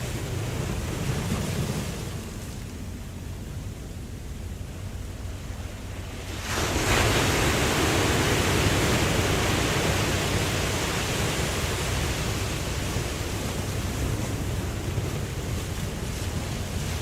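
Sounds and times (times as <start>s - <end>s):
low rumble of water: 0.0s - 17.0s
ocean wave breaking: 0.0s - 17.0s.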